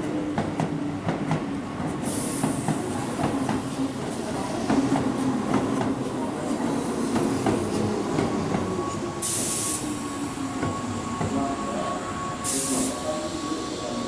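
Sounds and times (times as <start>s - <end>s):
electric train rumbling: 0.0s - 14.0s
air hissing bursts: 9.2s - 10.1s, 12.4s - 13.3s.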